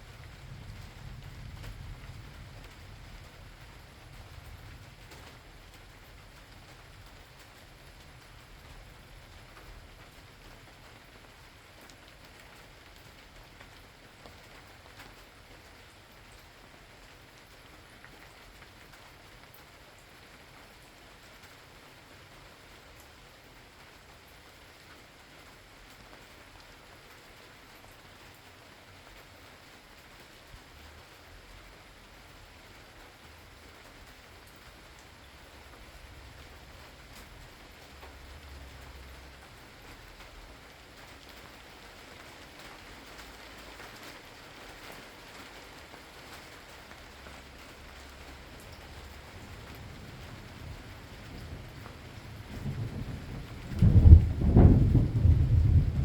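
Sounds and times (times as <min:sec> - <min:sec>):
distant thunder rumble: 0:00.0 - 0:10.1, 0:47.4 - 0:56.0
faint rain falling: 0:00.0 - 0:56.0
raindrops ticking: 0:00.0 - 0:56.0.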